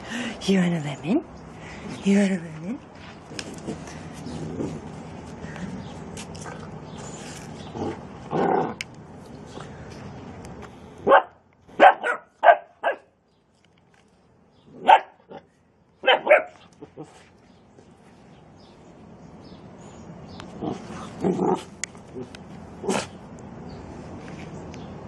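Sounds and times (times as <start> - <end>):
puppy barking: 11.0 - 13.1, 14.8 - 15.4, 16.0 - 17.1.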